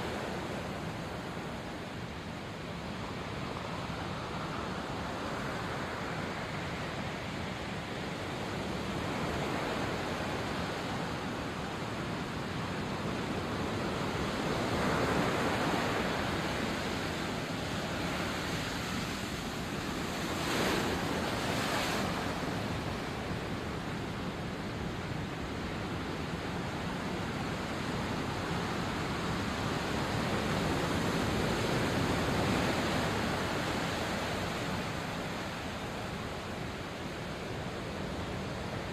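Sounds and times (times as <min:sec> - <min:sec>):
sea waves washing onto shore: 0:08.6 - 0:38.9.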